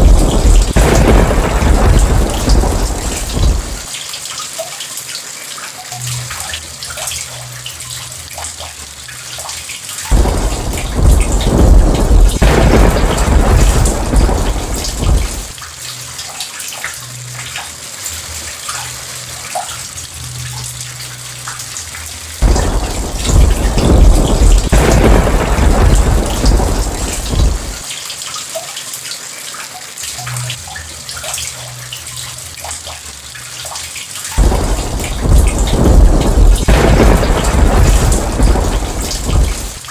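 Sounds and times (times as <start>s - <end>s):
thunder rolling: 0.0s - 3.9s, 10.1s - 15.6s, 22.4s - 27.8s, 34.4s - 39.9s
steady rain: 0.0s - 39.9s.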